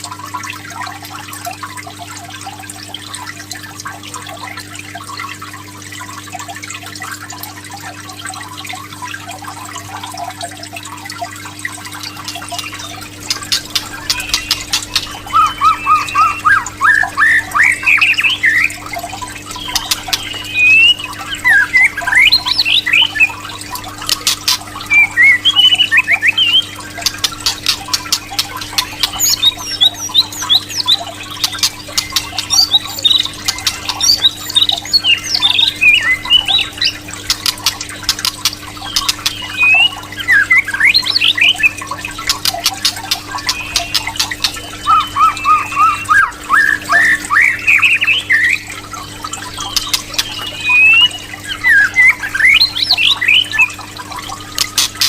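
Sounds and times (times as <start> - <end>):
bird whistled song: 11.8 - 37.8, 38.8 - 53.8
bird sharp clicking notes: 11.9 - 48.1, 49.5 - 53.7, 54.6 - 55.0.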